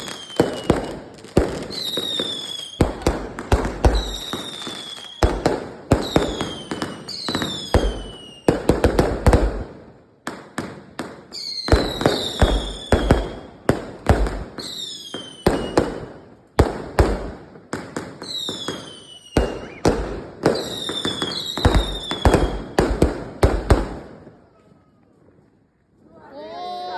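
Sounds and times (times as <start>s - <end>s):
firework whistles: 0.0s - 1.0s, 1.6s - 3.1s, 3.7s - 8.5s, 11.3s - 13.7s, 14.6s - 15.8s, 18.2s - 22.8s
firework bangs: 0.0s - 24.4s.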